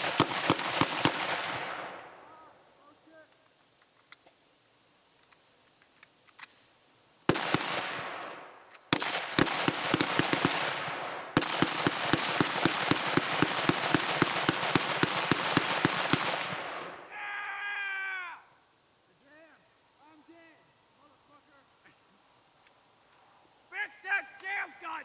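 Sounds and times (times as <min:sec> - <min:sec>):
rifle shots echoing: 0:00.0 - 0:02.4, 0:07.3 - 0:17.1.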